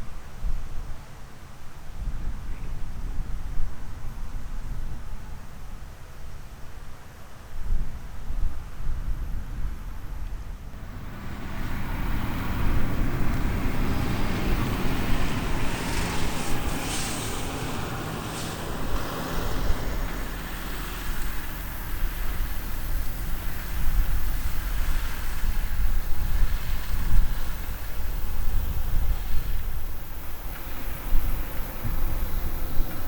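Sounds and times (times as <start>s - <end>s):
broad rushing noise: 10.7s - 33.0s
diesel engine drone: 10.7s - 33.0s.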